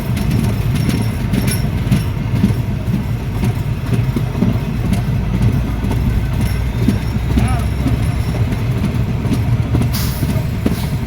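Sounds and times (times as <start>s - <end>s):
train rumbling on rails: 0.0s - 11.0s
wheels clicking and knocking: 0.0s - 11.0s.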